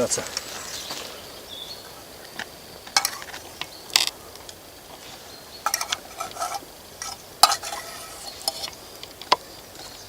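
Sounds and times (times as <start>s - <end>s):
metal cookware clinking: 3.0s - 3.3s, 5.6s - 8.7s.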